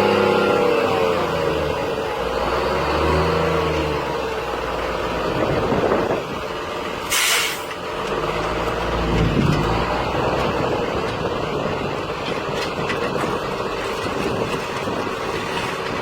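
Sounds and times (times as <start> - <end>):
truck engine running: 0.0 - 16.0
air brake hiss: 7.1 - 7.7.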